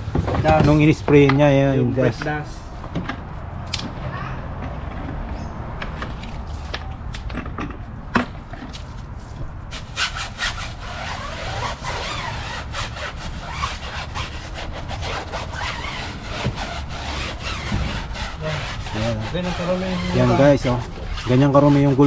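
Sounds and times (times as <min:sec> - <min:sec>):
brush scrubbing wheel rim: 0:09.7 - 0:22.0.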